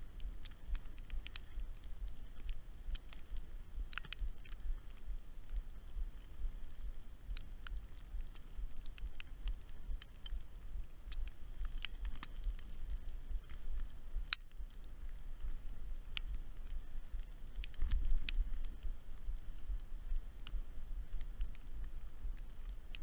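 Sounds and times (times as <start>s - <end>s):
raindrops ticking on camera: 0.0s - 23.0s
wind and road rumble: 0.0s - 23.0s.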